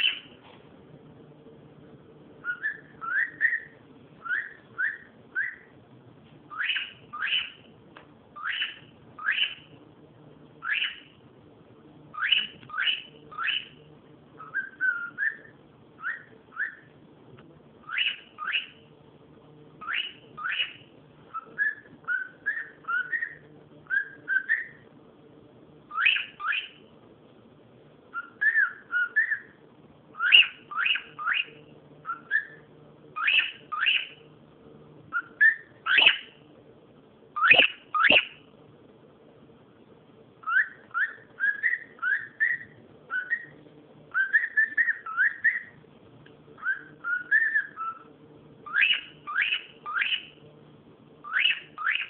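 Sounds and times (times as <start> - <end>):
cockatiel whistling: 0.0 - 0.4, 2.4 - 5.7, 6.5 - 7.7, 8.4 - 9.7, 10.6 - 11.2, 12.1 - 13.8, 14.4 - 17.0, 17.8 - 18.9, 19.8 - 24.8, 25.9 - 26.8, 28.1 - 34.2, 35.1 - 36.4, 37.4 - 38.4, 40.4 - 45.8, 46.6 - 50.4, 51.2 - 52.0.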